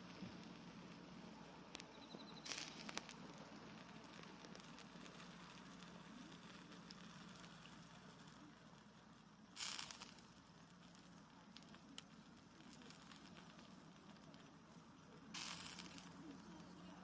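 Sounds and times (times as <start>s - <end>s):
campfire crackling: 0.0s - 17.0s
fire pops: 0.0s - 17.0s.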